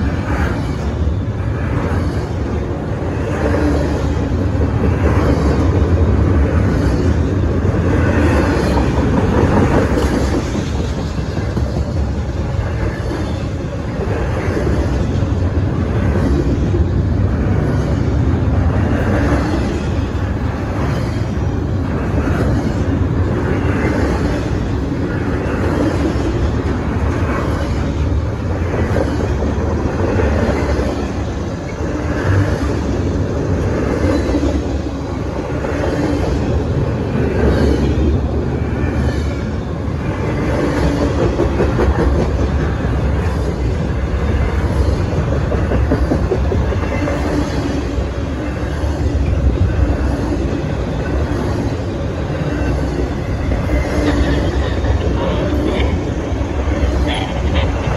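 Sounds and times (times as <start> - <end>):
freight train wheels rumbling: 0.0 - 57.9.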